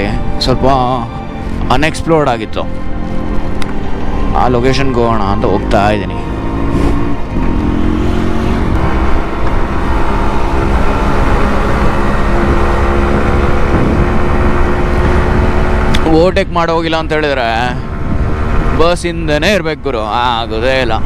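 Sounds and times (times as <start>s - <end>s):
motorcycle engine running: 2.9s - 19.6s.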